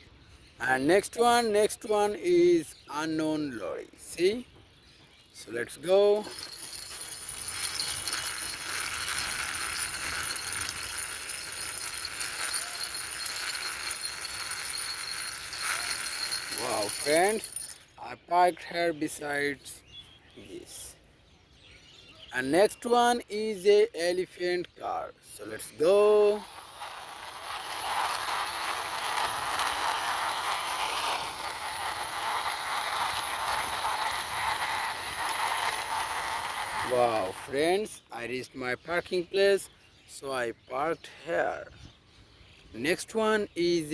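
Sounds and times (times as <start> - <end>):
toy truck wheels rolling and rattling: 5.4 - 18.0, 24.9 - 38.0.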